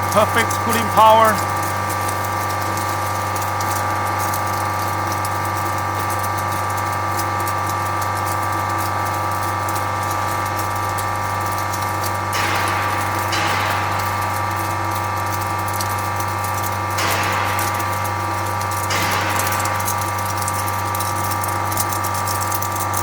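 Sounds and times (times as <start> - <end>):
ice machine compressor humming: 0.0 - 4.6
light crackle: 0.4 - 23.0.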